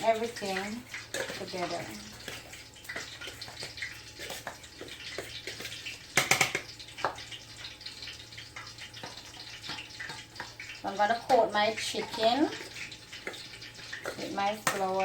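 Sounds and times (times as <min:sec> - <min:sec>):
bowl clatter: 0:00.0 - 0:07.2
scraping and tapping in a bowl: 0:00.0 - 0:15.0.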